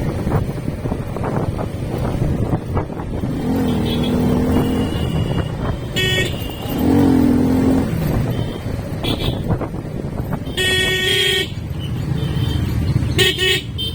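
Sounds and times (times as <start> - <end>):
wind noise: 0.0 - 11.9
motorcycle engine riding: 0.0 - 13.9
vehicle horn long blast: 3.7 - 6.8, 8.3 - 9.5, 10.4 - 11.6, 13.2 - 13.9.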